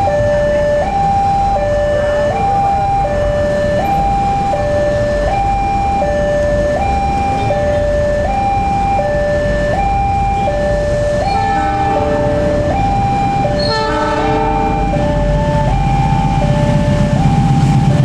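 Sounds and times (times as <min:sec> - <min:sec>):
level crossing two-tone alarm: 0:00.0 - 0:18.0
train horn: 0:11.2 - 0:12.6, 0:13.6 - 0:14.9.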